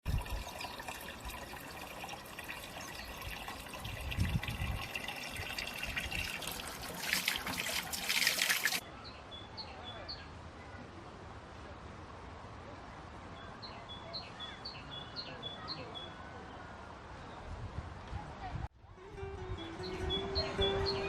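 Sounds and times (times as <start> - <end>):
water running and trickling: 0.0 - 8.8.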